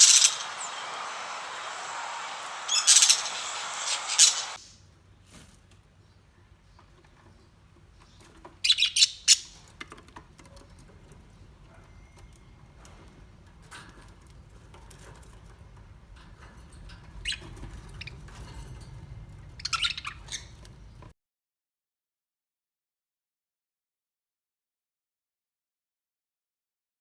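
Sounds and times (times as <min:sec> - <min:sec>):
birds chirping and squawking: 0:00.0 - 0:04.7, 0:06.8 - 0:09.8, 0:14.8 - 0:21.1.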